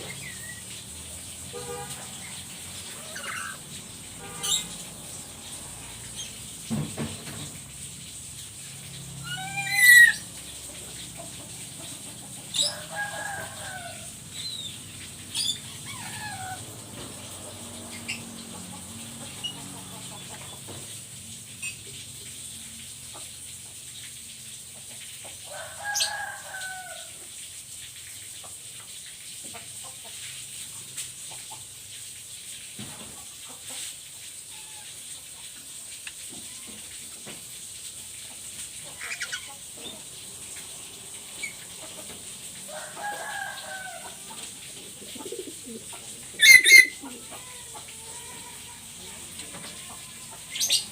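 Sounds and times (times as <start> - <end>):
parrot squawking: 2.2 - 3.6, 9.2 - 10.3, 15.3 - 16.6, 46.4 - 47.6.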